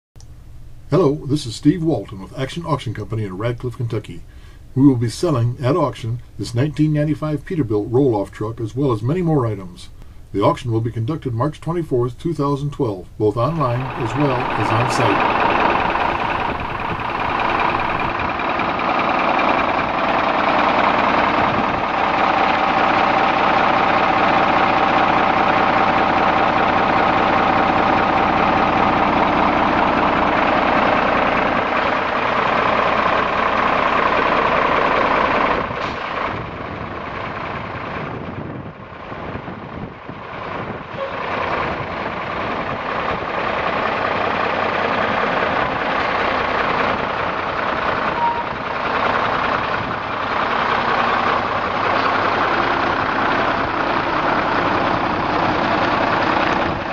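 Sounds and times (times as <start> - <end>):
diesel truck engine running: 12.9 - 56.9.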